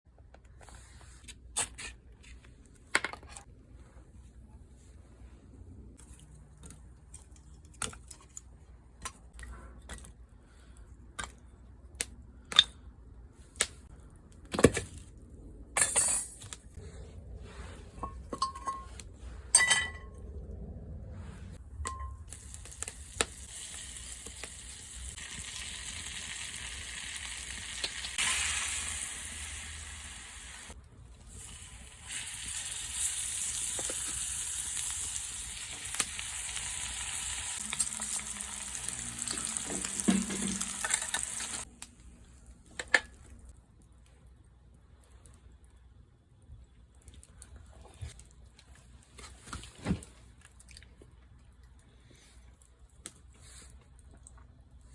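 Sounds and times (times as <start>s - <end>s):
cookware clinking: 18.0s - 19.0s, 19.6s - 20.2s
steak sizzling in a frying pan: 22.6s - 30.7s, 31.9s - 41.6s.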